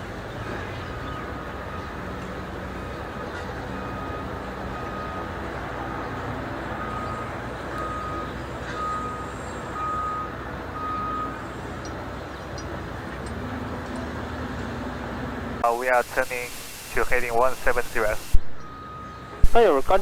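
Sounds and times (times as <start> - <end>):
steady low noise: 15.6 - 18.7.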